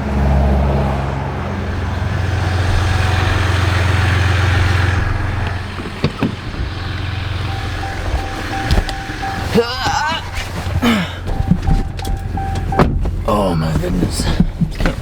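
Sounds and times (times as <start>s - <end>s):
boat motor humming: 1.5s - 13.3s
sharp knocks: 5.7s - 10.4s.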